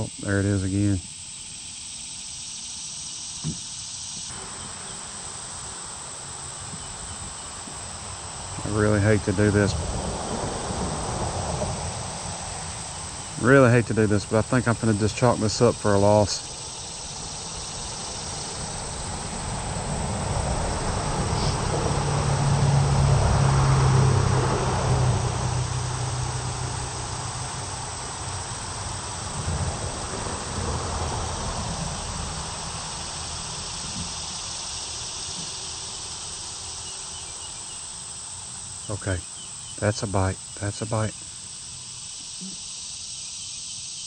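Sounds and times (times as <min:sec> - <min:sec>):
insect chorus buzzing: 0:00.0 - 0:44.0
vehicle engine driving past: 0:04.3 - 0:39.0.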